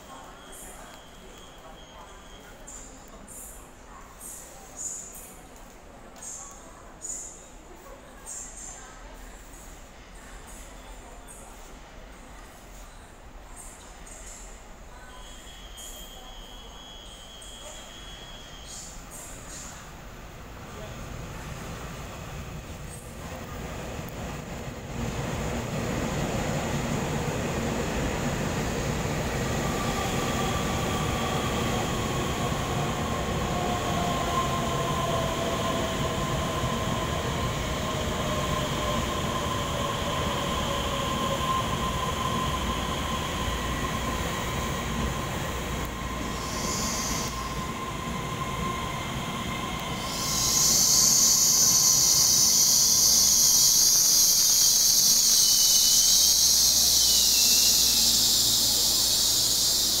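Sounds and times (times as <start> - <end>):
electric train rumbling and whining: 19.9 - 60.0
loud high hiss: 39.0 - 48.6, 49.9 - 60.0.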